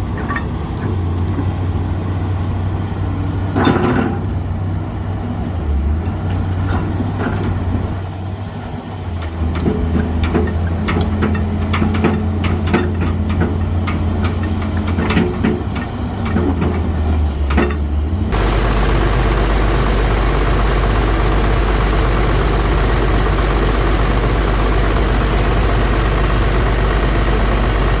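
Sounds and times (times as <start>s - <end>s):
excavator diesel engine idling: 6.4s - 28.0s.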